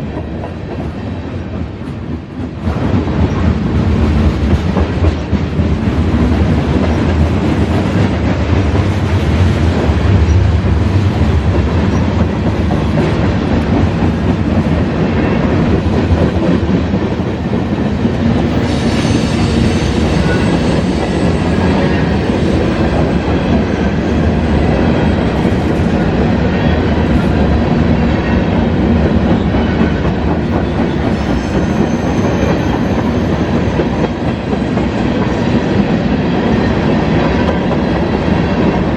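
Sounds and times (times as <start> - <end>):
freight train rumble and clatter: 0.0 - 38.9
high wheel squeal: 30.8 - 33.7.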